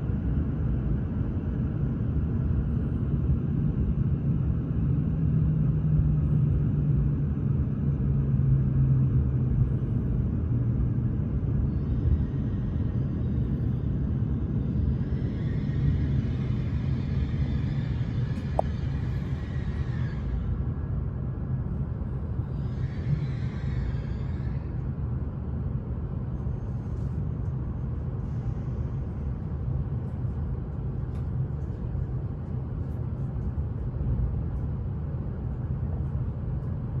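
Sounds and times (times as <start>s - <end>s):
train rumbling: 8.4s - 37.0s
train hiss: 14.9s - 20.6s.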